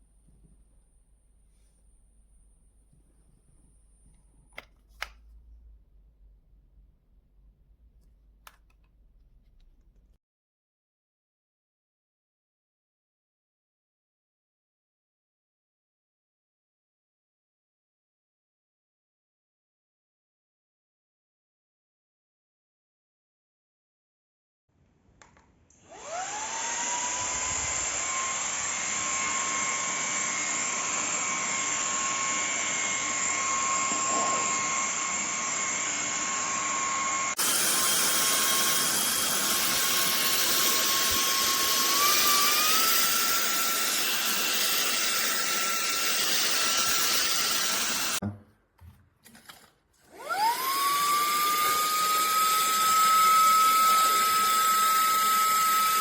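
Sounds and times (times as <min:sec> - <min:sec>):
handheld vacuum cleaner motor whine: 0:25.8 - 0:48.2, 0:50.1 - 0:56.0.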